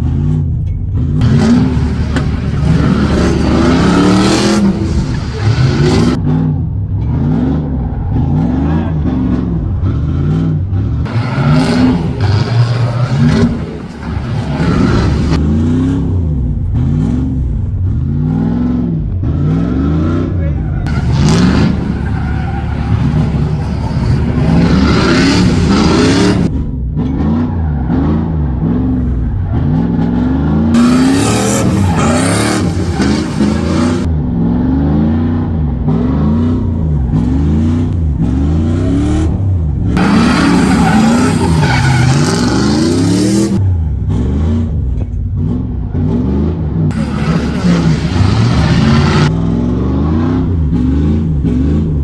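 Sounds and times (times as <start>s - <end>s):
car engine revving: 1.2s - 6.2s, 8.1s - 15.5s, 20.9s - 26.5s, 30.8s - 34.1s, 35.9s - 44.7s, 45.4s - 51.9s
tyres squealing: 1.2s - 6.2s, 11.1s - 15.4s, 20.9s - 26.5s, 30.8s - 34.1s, 40.0s - 43.6s, 46.9s - 49.3s.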